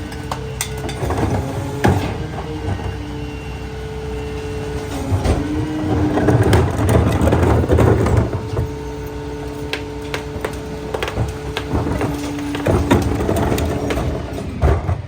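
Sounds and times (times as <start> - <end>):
garbage truck mechanical whine: 0.0 - 15.0
crunching and low rumble: 4.5 - 15.0.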